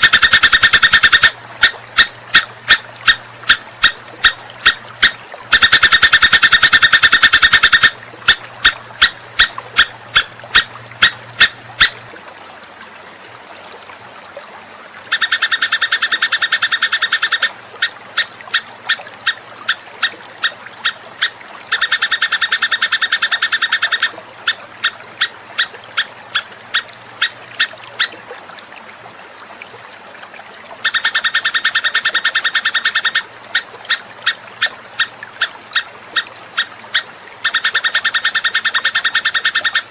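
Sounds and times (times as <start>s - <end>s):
songbird buzzy trill: 0.0s - 12.0s.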